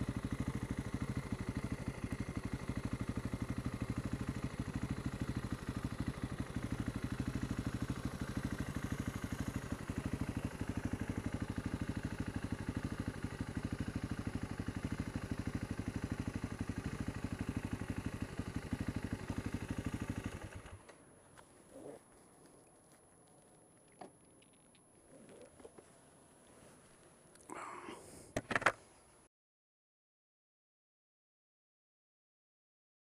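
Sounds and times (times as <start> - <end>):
motorcycle engine idling: 0.0 - 21.2.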